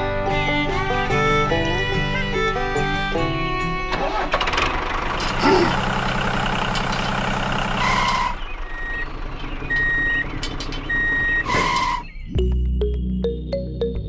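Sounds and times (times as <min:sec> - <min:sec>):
heavy vehicle engine running: 0:00.0 - 0:12.6
reversing alarm beeping: 0:07.8 - 0:12.6.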